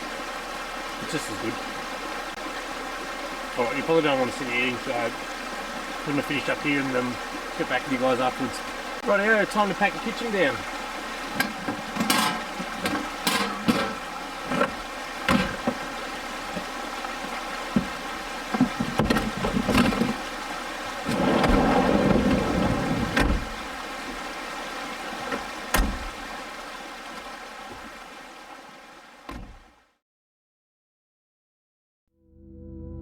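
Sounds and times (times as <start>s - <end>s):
brook rushing: 0.0s - 28.0s
rustling clatter: 11.4s - 15.8s.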